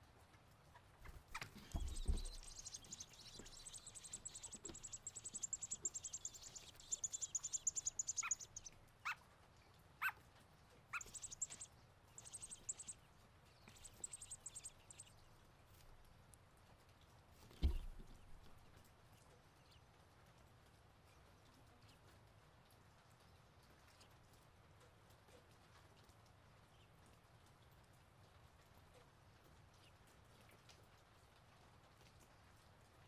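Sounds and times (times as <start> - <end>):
baby birds chittering: 1.1 - 9.2, 10.9 - 15.2
low thump: 1.7 - 2.6, 17.6 - 18.0.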